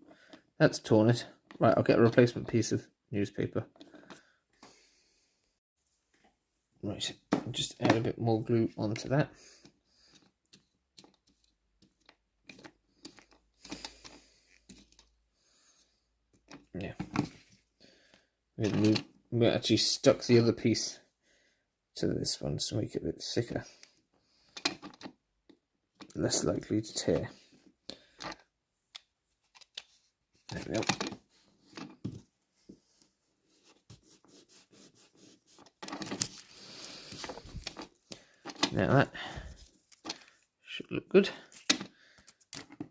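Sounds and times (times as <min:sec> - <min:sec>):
glue being brushed on: 0:33.6 - 0:35.8.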